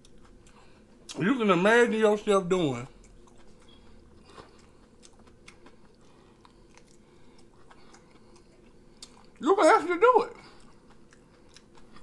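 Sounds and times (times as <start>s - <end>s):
faint chewing with mouth clicks: 0.0s - 1.2s, 2.9s - 9.4s, 10.3s - 12.0s.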